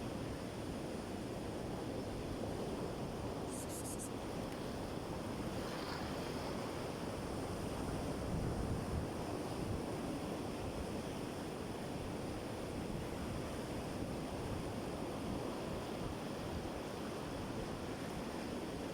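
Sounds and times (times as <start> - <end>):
wind rumbling on microphone: 2.4 - 10.8.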